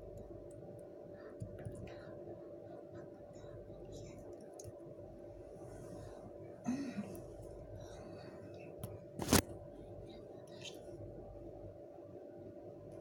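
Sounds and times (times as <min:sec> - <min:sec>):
steady electrical hum: 0:00.0 - 0:13.0
handling and tidying noises: 0:09.2 - 0:09.4.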